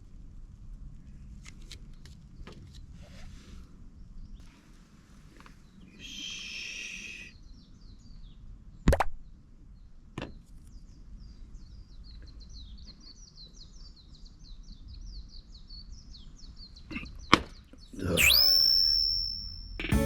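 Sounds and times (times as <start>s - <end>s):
loud swooping sound: 18.1s - 19.9s.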